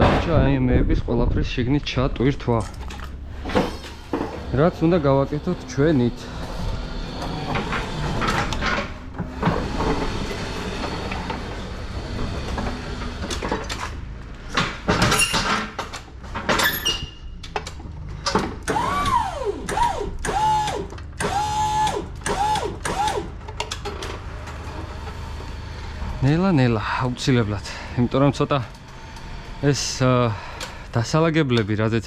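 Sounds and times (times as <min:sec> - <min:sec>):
steady low hum: 0:00.6 - 0:15.0
knocks and clatter: 0:02.2 - 0:18.8
electric motor whining: 0:03.2 - 0:13.6, 0:18.7 - 0:23.3, 0:24.3 - 0:31.0.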